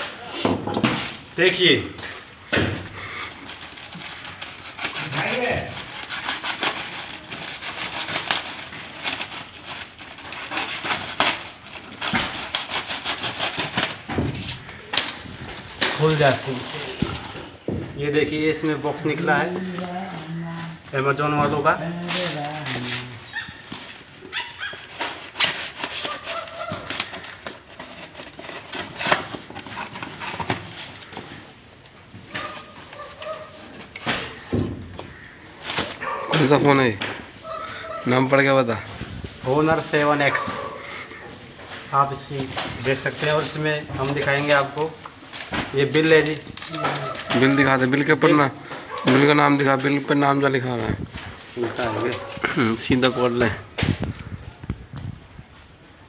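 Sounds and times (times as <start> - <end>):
cardboard packaging rustling: 0.0 - 56.0
knife cutting open a package: 3.3 - 15.2, 21.8 - 31.6
cardboard boxes knocking: 13.4 - 15.1, 17.0 - 18.0, 33.9 - 35.1.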